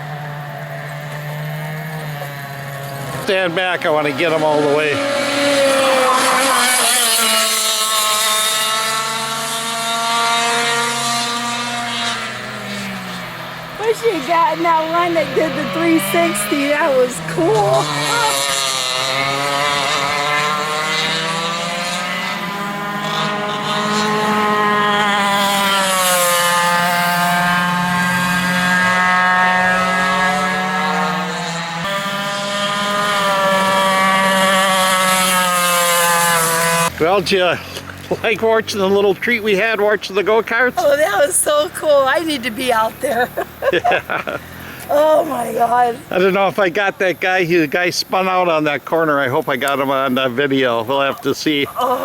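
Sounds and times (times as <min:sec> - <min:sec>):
go-kart engine at high revs: 0:00.0 - 0:52.0.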